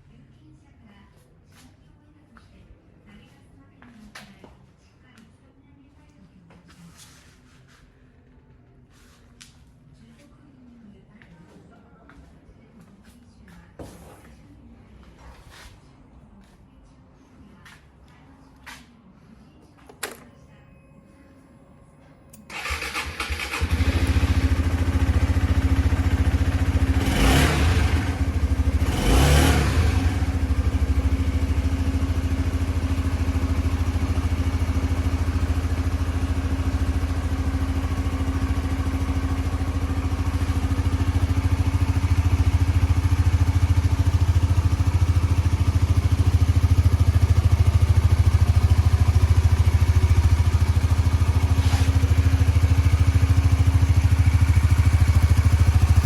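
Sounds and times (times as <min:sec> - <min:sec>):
motorcycle engine starting and idling: 0:22.3 - 0:56.0.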